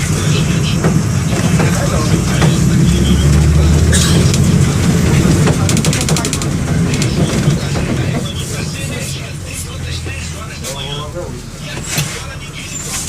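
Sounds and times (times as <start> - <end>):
bus diesel engine running: 0.0 - 13.0
rapid clicking rattles: 4.2 - 8.2.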